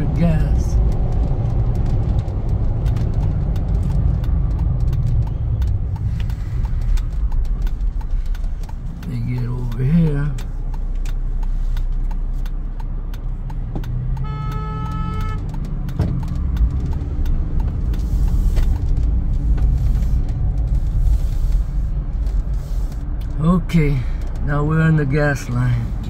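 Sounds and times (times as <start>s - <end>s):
car engine and road rumble: 0.0s - 26.0s
car horn: 14.2s - 15.6s.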